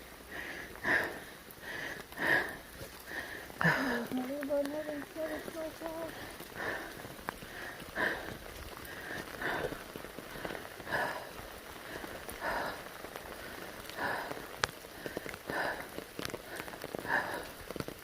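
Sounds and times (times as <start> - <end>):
footsteps on wet trail: 0.0 - 18.0
steady rain: 0.0 - 18.0.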